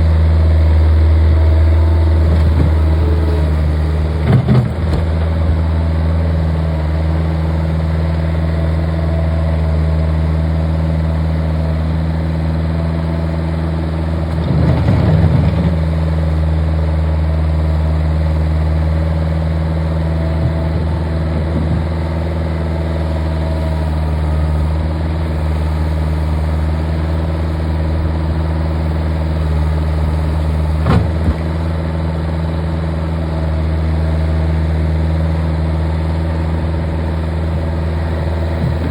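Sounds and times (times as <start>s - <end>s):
skid loader engine running: 0.0s - 38.9s.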